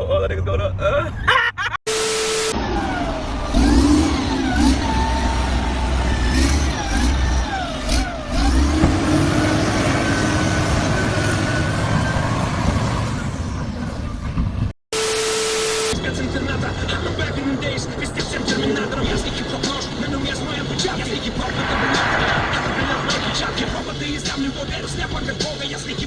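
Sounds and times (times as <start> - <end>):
vehicle engine revving: 2.6 - 13.7.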